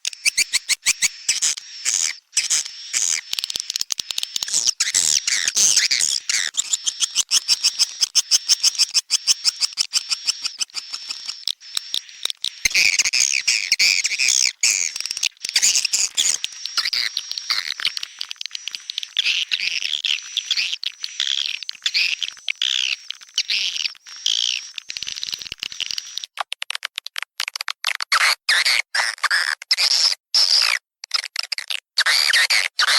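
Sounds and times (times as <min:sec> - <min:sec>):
rapid sharp clicks: 0:00.0 - 0:19.2
swiftlets twittering: 0:00.0 - 0:26.2.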